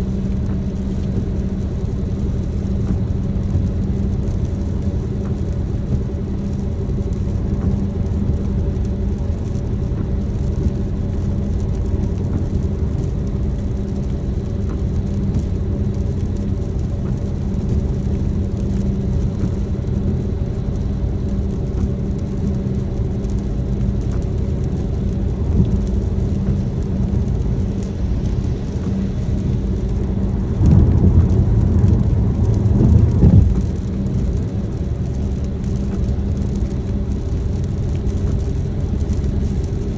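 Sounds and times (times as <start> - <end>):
car engine and road noise: 0.0 - 39.9
rain hissing: 0.0 - 39.9
loud rush: 29.4 - 34.6.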